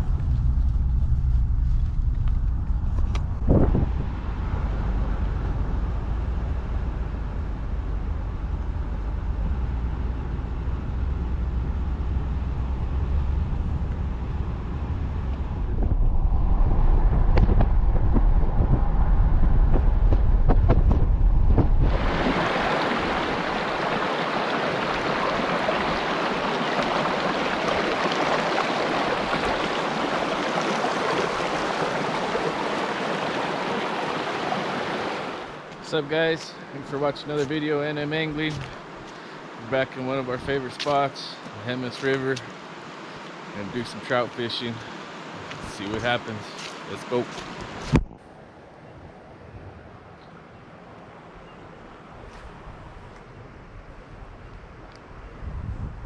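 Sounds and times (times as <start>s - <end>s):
vehicle driving rumble: 0.0s - 34.3s
mountain river rushing: 21.8s - 47.9s.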